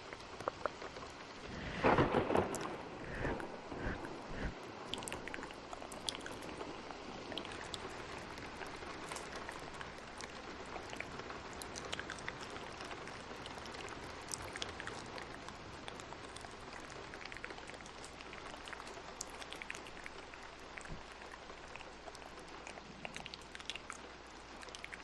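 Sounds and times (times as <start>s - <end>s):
sharp clicks of raindrops: 0.0s - 25.0s
steady rain hiss: 0.0s - 25.0s
thunder rumble: 1.3s - 15.3s.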